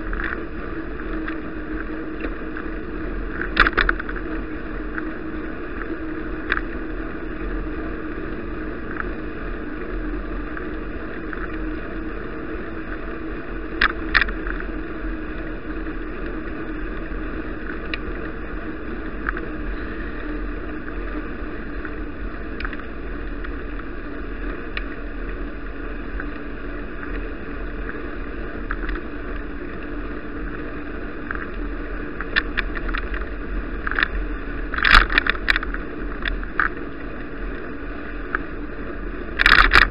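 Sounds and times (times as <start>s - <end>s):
bicycle rattles: 0.0s - 38.5s, 39.2s - 39.9s
bicycle rolling noise: 0.0s - 39.9s.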